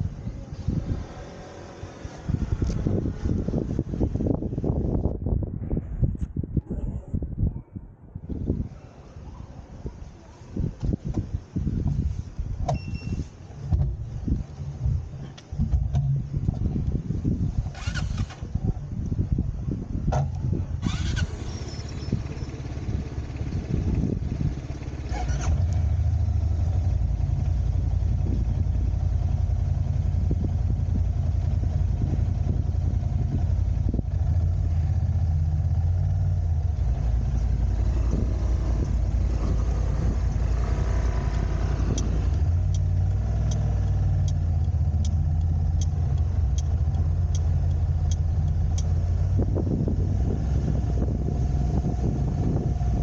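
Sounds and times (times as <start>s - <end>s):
car engine and road noise: 0.0s - 53.0s
light ticking: 41.3s - 49.2s.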